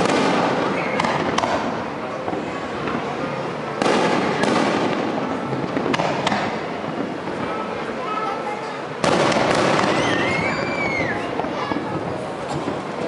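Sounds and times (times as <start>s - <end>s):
fireworks bang: 0.0s - 3.0s, 3.8s - 7.6s, 9.0s - 12.8s
fireworks sharp pops: 0.0s - 3.0s, 3.7s - 7.5s, 9.0s - 10.2s
fireworks crackle: 0.0s - 8.1s, 8.9s - 13.0s.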